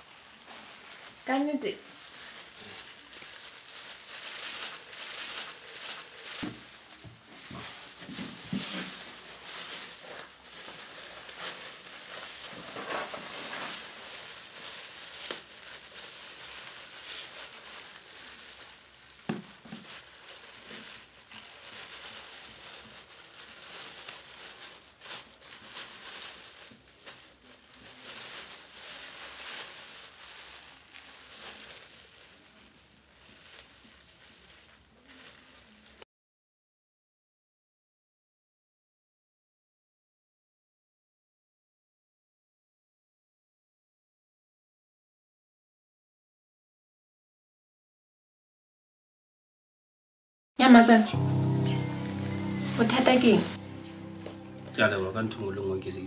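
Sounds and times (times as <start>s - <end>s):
plastic bags crinkling: 0.0s - 36.0s, 50.6s - 56.0s.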